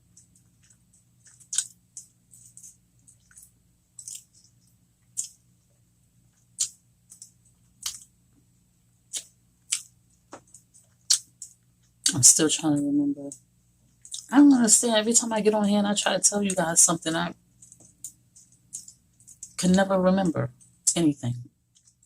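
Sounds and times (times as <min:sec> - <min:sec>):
person chewing soft food: 0:00.0 - 0:05.5, 0:06.3 - 0:08.2, 0:09.0 - 0:12.0
faint steady hum: 0:00.0 - 0:22.0.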